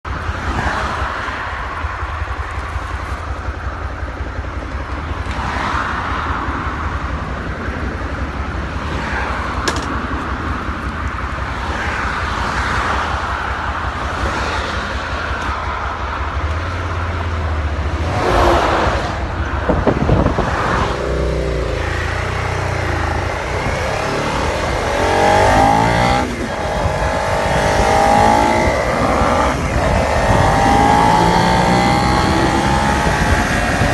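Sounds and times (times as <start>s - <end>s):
motorcycle engine running: 0.0s - 18.0s, 18.9s - 33.9s
wind buffeting microphone: 16.2s - 33.9s.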